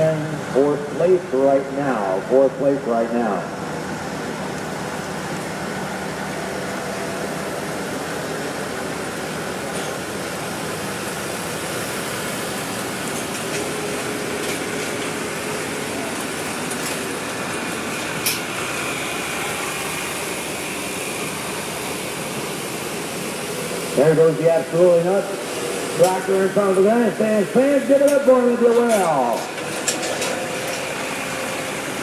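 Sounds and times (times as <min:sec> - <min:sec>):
tractor engine roaring: 0:00.0 - 0:32.0.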